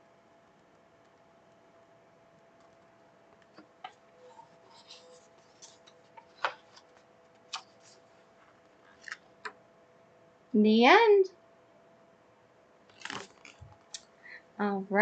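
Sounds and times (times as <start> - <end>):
faint steady hum: 0.0 - 15.0
soft rustles: 4.2 - 9.1.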